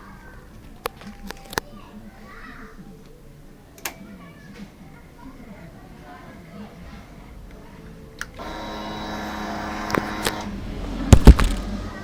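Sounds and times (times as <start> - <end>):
motorcycle starter click: 8.2 - 11.8
steady hum: 8.4 - 12.0
loud thumps: 11.1 - 11.8.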